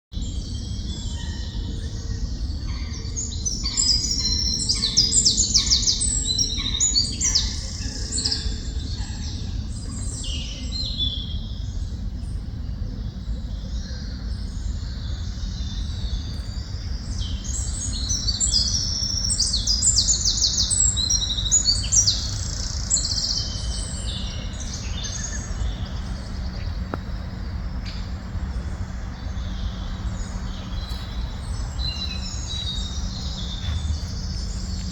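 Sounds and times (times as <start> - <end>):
songbirds chirping and trilling: 0.2 - 34.9
low rumble: 20.8 - 34.9.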